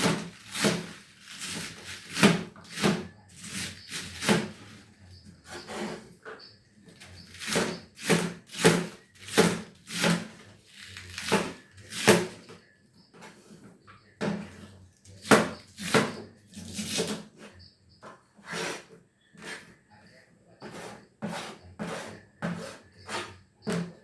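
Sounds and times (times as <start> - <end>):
knife slicing cabbage on board: 0.0 - 4.6, 7.3 - 12.4, 20.7 - 23.9.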